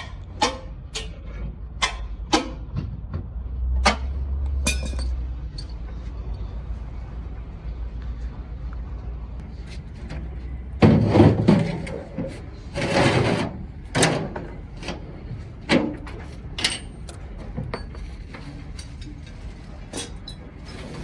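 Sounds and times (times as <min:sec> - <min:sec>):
metal clanks and scrapes: 0:00.0 - 0:03.0, 0:03.8 - 0:06.0, 0:09.7 - 0:21.0.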